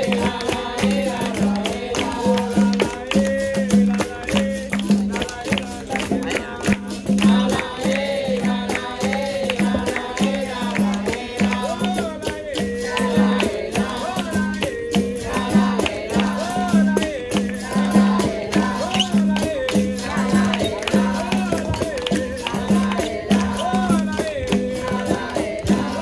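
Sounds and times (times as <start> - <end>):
sharp percussive strikes: 0.0 - 26.0
tambourine-like pandeiro: 0.0 - 26.0
voices singing: 0.0 - 26.0
berimbau: 12.5 - 26.0.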